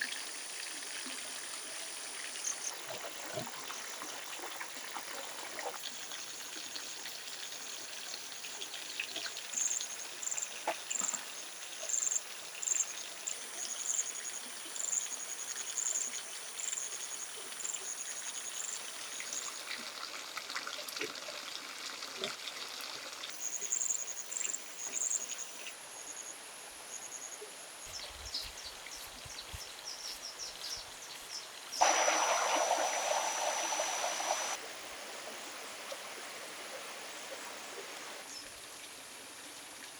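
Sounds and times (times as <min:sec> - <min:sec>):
water trickling: 0:27.9 - 0:39.9.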